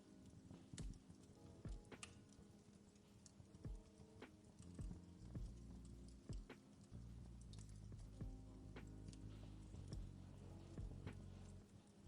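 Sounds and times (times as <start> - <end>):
fireplace crackle pops: 0.6 - 11.7
low steady hum: 4.6 - 12.0.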